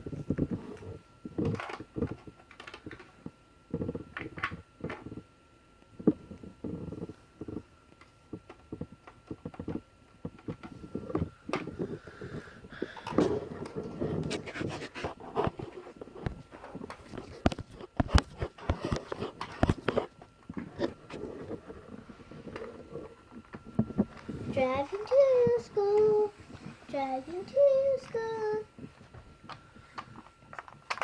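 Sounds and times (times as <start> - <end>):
plastic toys clicking and tapping: 1.3 - 3.1, 6.8 - 11.8, 29.5 - 31.0.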